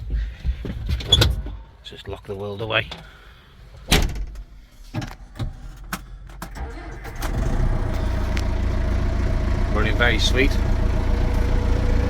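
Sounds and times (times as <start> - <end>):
tractor diesel engine starting: 6.4 - 12.0
diesel engine idling: 6.6 - 12.0.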